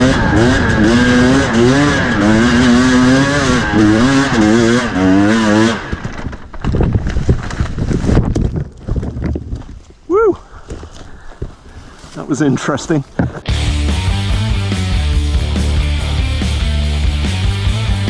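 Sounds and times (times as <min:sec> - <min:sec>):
two-stroke dirt bike engine revving: 0:00.0 - 0:06.1, 0:13.5 - 0:18.0.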